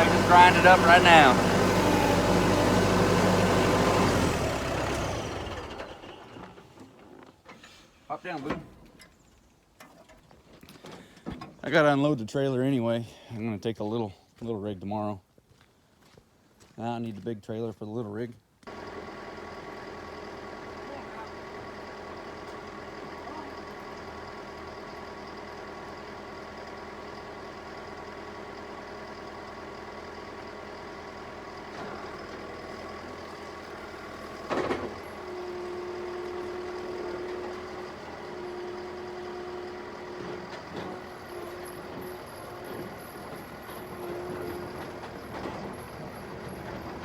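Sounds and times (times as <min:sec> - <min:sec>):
steady machine whine: 0:00.0 - 0:05.6
diesel engine running: 0:00.0 - 0:06.6, 0:18.7 - 0:47.0.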